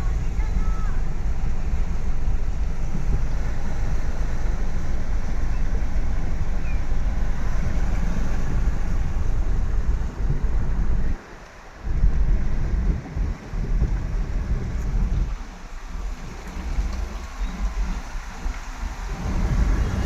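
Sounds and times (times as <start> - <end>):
heavy rain hiss: 0.0 - 20.0
wind buffeting microphone: 0.0 - 20.0.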